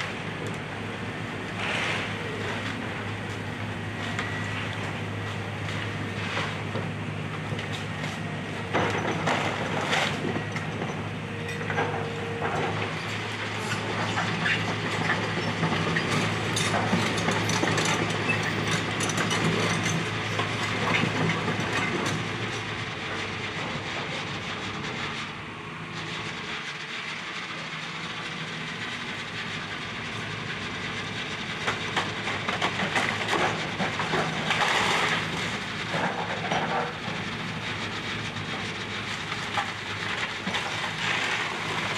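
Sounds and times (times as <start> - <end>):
excavator diesel engine running: 0.0 - 41.9
wood and debris cracking: 32.0 - 36.7, 39.2 - 41.9.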